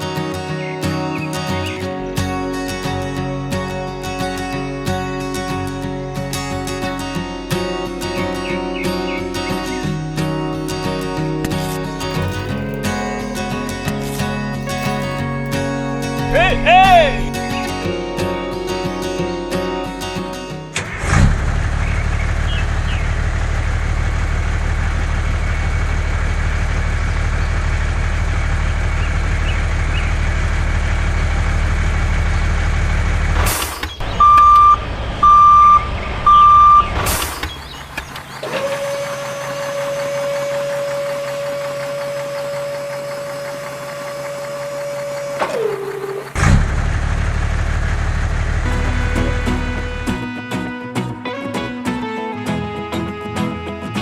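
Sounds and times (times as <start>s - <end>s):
heavy vehicle engine running: 0.0s - 50.8s
short beeps: 34.2s - 36.9s.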